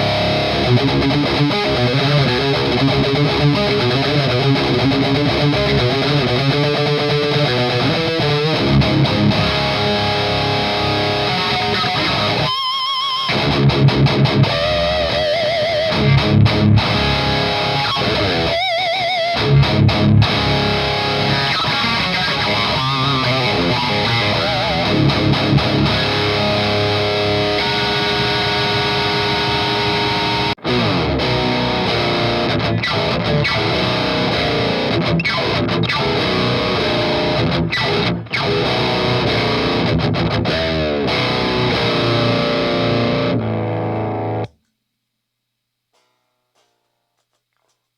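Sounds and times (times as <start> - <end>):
low guitar chugs: 0.0 - 44.4
distorted electric guitar riffing: 0.0 - 44.6.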